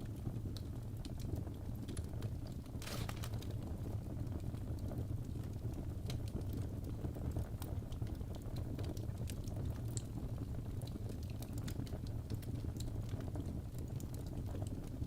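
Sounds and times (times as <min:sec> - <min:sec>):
fire crackling and popping: 0:00.0 - 0:15.0
fire rumbling: 0:00.6 - 0:10.2.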